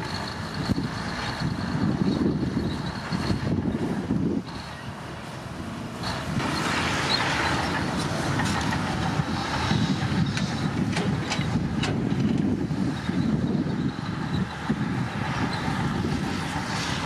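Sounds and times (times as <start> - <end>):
bulldozer diesel engine under load: 0.0 - 17.0
steel tracks clanking: 6.0 - 14.7.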